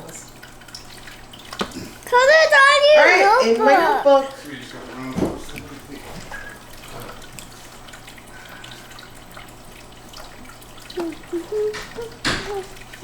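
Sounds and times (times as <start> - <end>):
child's voice: 2.1 - 4.3, 11.0 - 12.8.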